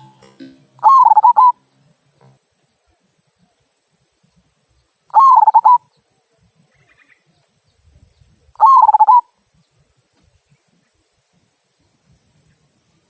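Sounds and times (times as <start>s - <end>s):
dove cooing: 0.0s - 1.6s, 5.1s - 5.9s, 8.6s - 9.3s.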